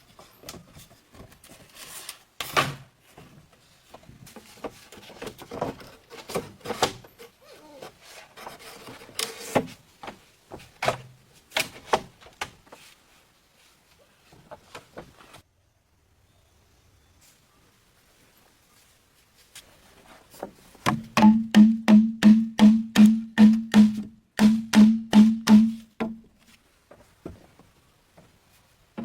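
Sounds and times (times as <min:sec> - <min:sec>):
loud sharp knocks: 0:20.8 - 0:26.2.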